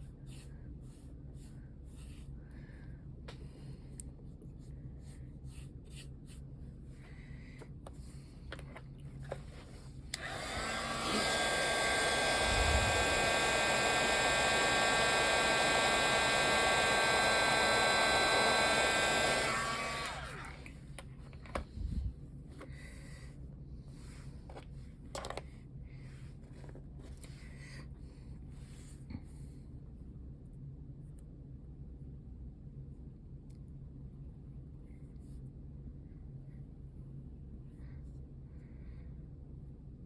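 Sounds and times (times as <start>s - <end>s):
hot-air blower running: 10.1s - 20.9s.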